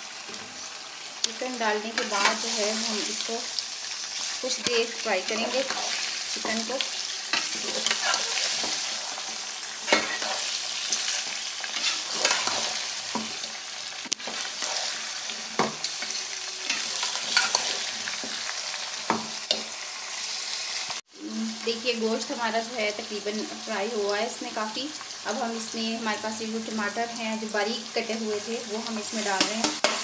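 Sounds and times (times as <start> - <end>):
chicken sizzling in hot oil: 0.0 - 30.0
metal spoon scraping a pot: 7.2 - 13.3, 15.6 - 17.9.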